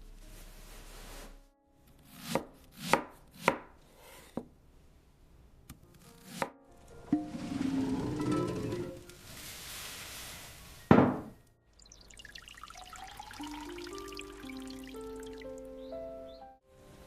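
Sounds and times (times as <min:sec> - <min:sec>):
knife chopping on wooden board: 0:02.1 - 0:03.7.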